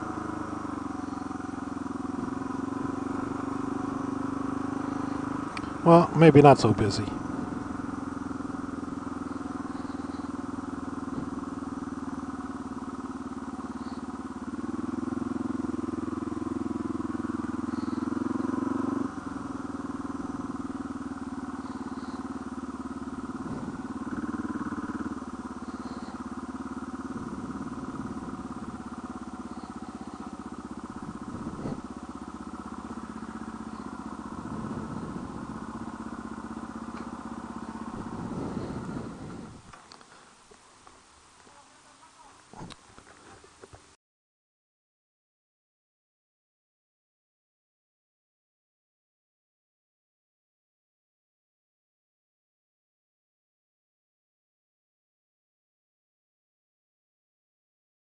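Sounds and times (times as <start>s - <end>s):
motorcycle engine: 0.0s - 44.0s.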